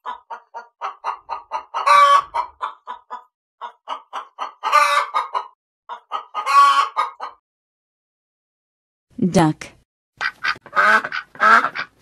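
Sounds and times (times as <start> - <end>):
chicken clucking: 0.0 - 7.4, 10.2 - 12.0
chicken squawking: 0.0 - 7.4, 10.2 - 12.0.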